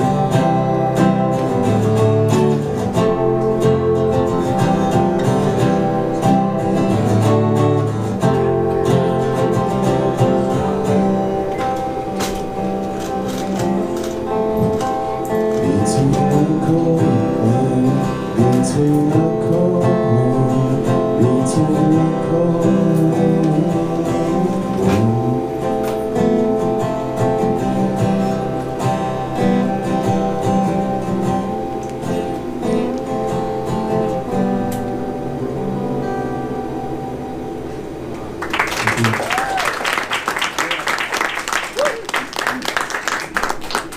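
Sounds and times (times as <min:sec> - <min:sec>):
live band playing: 0:00.0 - 0:19.7
guitars: 0:00.0 - 0:43.9.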